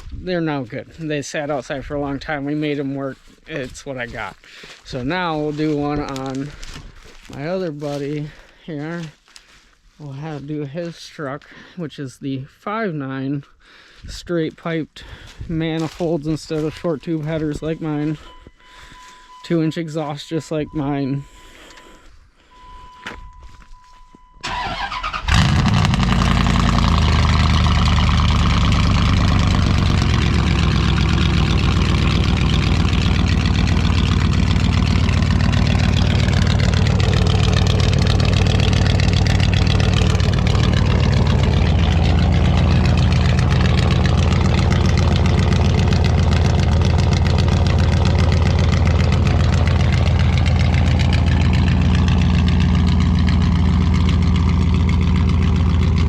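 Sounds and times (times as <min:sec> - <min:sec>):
engine cranking: 0:24.4 - 0:56.0
truck engine idling loudly: 0:24.5 - 0:56.0.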